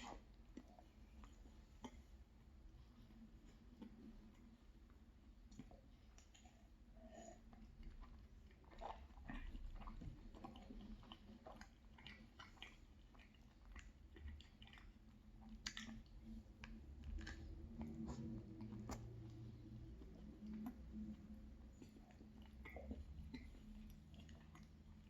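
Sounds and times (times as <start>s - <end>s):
person chewing with mouth clicks: 5.5s - 25.0s.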